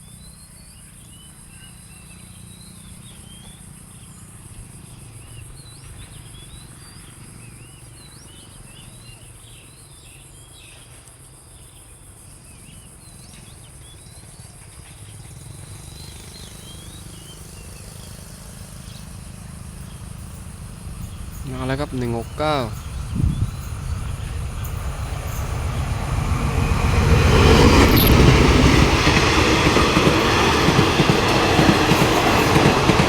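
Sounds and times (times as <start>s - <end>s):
small birds chirping: 12.5s - 33.0s
high-pitched insect drone: 16.0s - 33.0s
low rumble: 22.7s - 30.1s.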